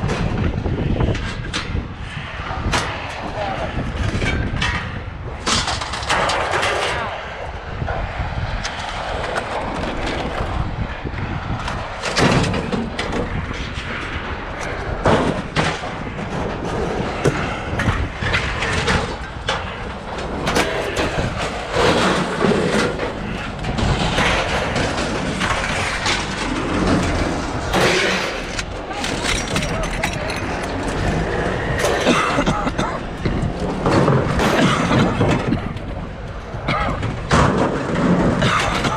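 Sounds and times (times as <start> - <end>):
low rumble: 0.0 - 38.9
scrap metal thumping and clanging: 11.5 - 35.9, 36.6 - 38.9.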